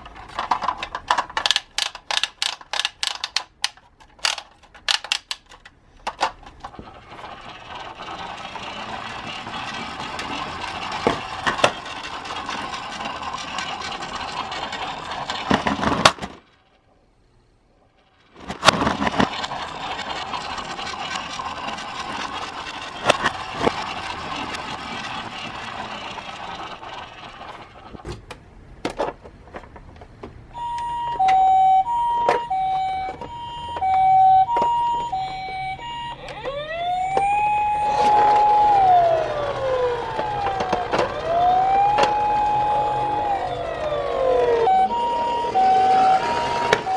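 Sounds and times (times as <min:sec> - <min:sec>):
toy cars rattling on plastic track: 0:00.0 - 0:16.8, 0:17.9 - 0:28.1, 0:31.1 - 0:46.9
electronic two-tone siren: 0:30.6 - 0:46.9.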